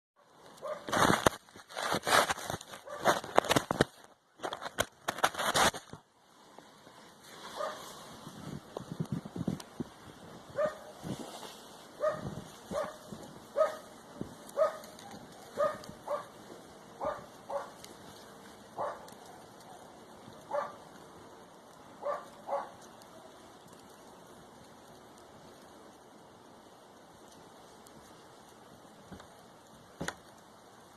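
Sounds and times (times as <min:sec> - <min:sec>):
dog barking: 0:00.6 - 0:00.9, 0:02.8 - 0:03.0, 0:07.6 - 0:07.8, 0:10.6 - 0:11.0, 0:12.0 - 0:13.0, 0:13.6 - 0:13.9, 0:14.6 - 0:16.4, 0:17.0 - 0:17.8, 0:18.8 - 0:19.9, 0:20.5 - 0:20.8, 0:22.0 - 0:22.8.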